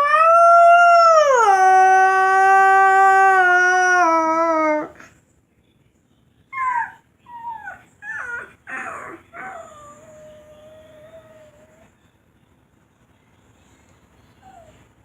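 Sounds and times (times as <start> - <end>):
whimpering squeaks: 6.6 - 11.9, 14.3 - 15.0.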